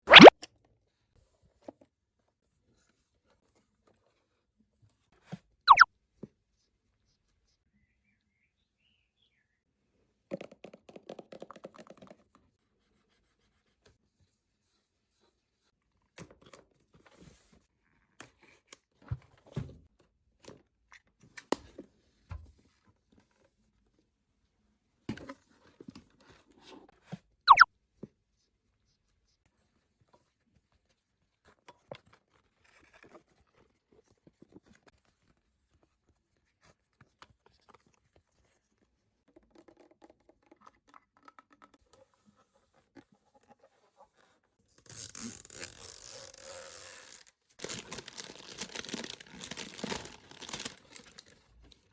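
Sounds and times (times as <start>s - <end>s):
sharp squeak: 5.7s - 5.9s, 27.5s - 27.7s
packaging and toys handled: 39.4s - 51.9s
packaging tearing: 44.9s - 51.5s.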